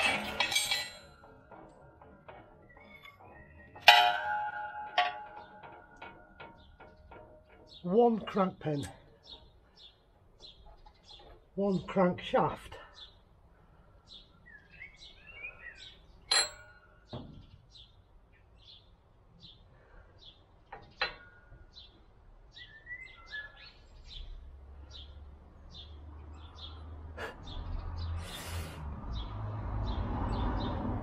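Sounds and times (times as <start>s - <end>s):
metal parts clinking: 0.0s - 8.4s.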